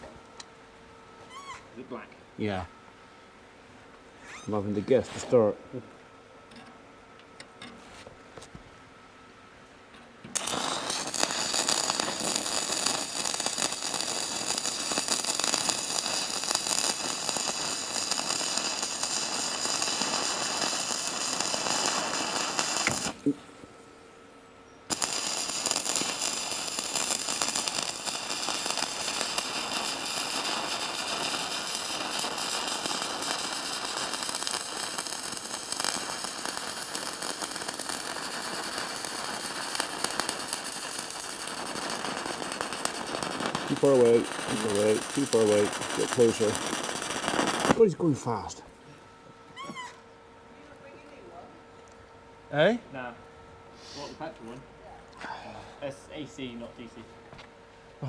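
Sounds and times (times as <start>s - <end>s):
welding arc crackling and sizzling: 10.3s - 23.4s, 24.9s - 48.5s.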